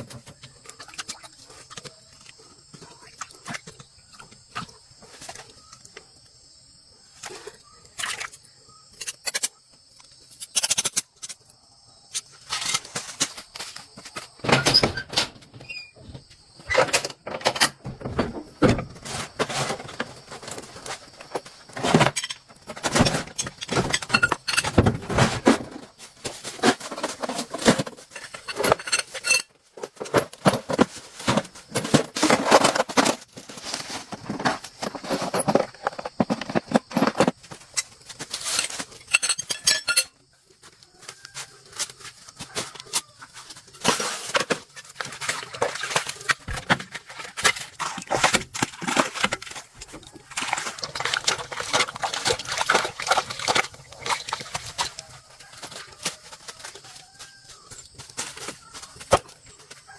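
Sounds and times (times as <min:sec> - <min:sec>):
metallic clinking and rattling: 0:26.7 - 0:40.2.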